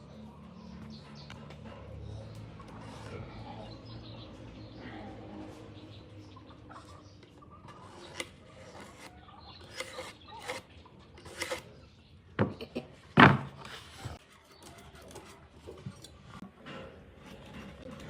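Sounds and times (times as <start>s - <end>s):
wood knocking and scraping: 13.2s - 14.2s.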